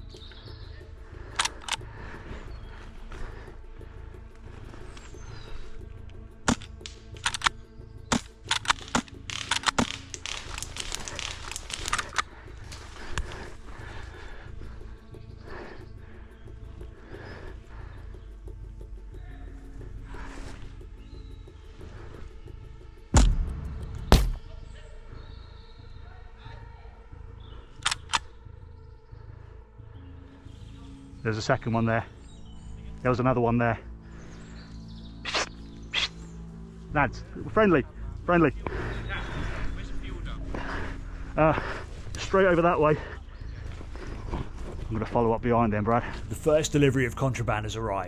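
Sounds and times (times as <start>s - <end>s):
background music: 0.0s - 48.0s
sharp snaps and crackles: 1.1s - 2.3s, 4.4s - 14.8s, 27.8s - 28.4s, 35.2s - 36.3s
sharp clicks: 1.3s - 1.9s, 6.4s - 13.3s, 27.8s - 28.3s
airsoft rifle pops: 6.4s - 12.2s, 23.2s - 24.5s.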